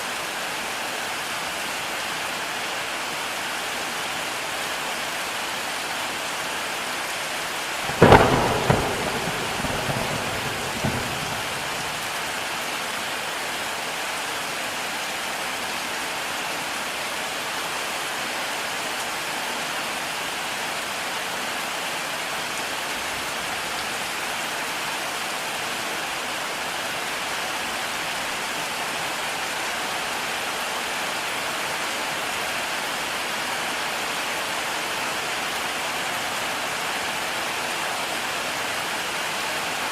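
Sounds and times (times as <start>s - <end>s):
heavy rain falling: 0.0s - 39.9s
thunderclap rumbling: 7.8s - 12.4s.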